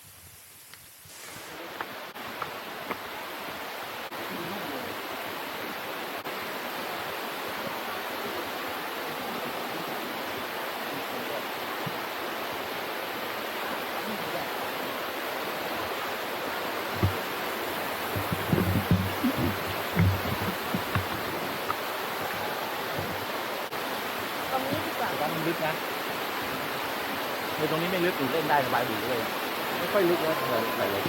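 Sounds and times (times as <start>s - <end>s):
waterfall rushing: 1.1s - 31.0s
low bumps: 16.9s - 22.4s.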